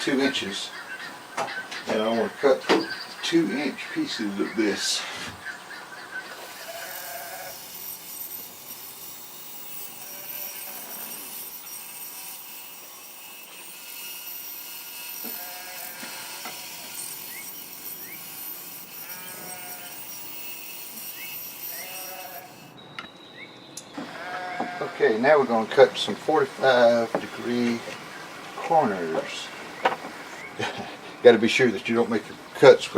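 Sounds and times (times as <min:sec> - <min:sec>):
power saw cutting wood: 0:06.3 - 0:22.8, 0:24.0 - 0:31.4.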